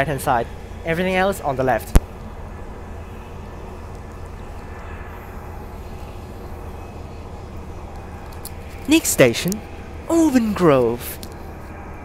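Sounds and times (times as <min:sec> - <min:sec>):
low electric hum: 0:00.0 - 0:12.0
train rolling noise: 0:00.0 - 0:12.0.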